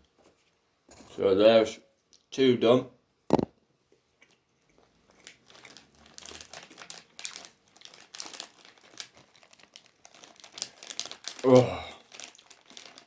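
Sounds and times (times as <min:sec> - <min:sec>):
plastic packaging crinkling: 0:04.8 - 0:13.0.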